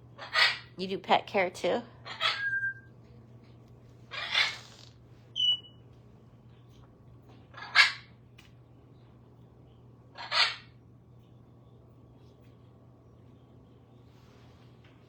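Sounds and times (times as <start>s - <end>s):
bird chirp: 2.2s - 2.9s, 4.1s - 5.8s.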